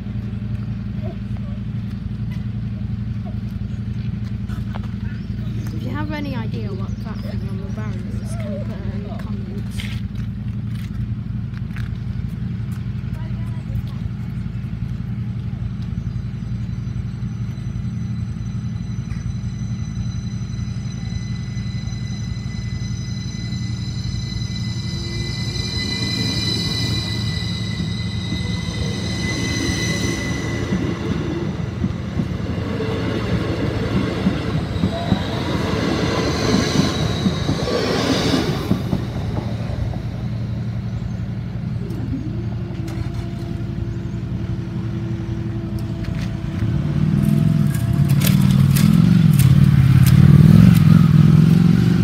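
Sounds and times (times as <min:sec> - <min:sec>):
low rumble with sharp clicks: 0:00.0 - 0:20.1, 0:38.6 - 0:52.0
train rumble with wheel clatter: 0:00.0 - 0:52.0
high steady tones: 0:16.3 - 0:42.8.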